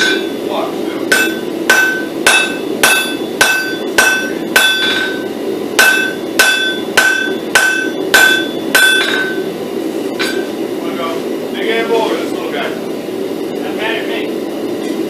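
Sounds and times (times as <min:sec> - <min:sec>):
hammer striking steel on anvil: 0:00.0 - 0:00.4, 0:01.1 - 0:09.5, 0:10.2 - 0:10.6.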